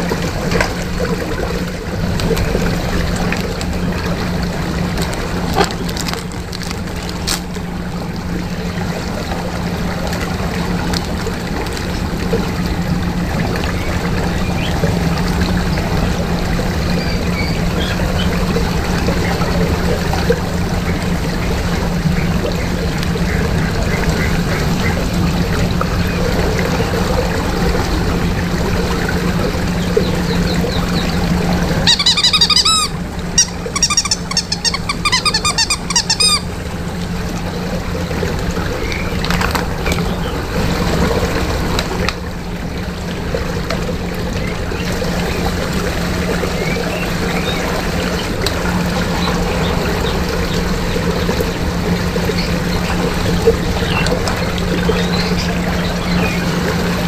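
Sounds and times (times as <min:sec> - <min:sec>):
steady low hum: 0:00.0 - 0:57.0
water churning in a whirlpool: 0:00.0 - 0:57.0
squeaky chirps: 0:31.8 - 0:36.5.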